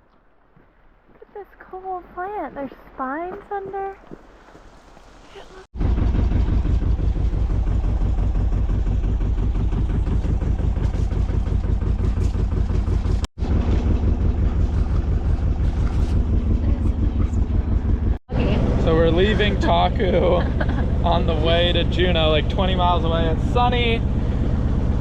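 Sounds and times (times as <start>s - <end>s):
boat engine droning: 5.7s - 25.0s.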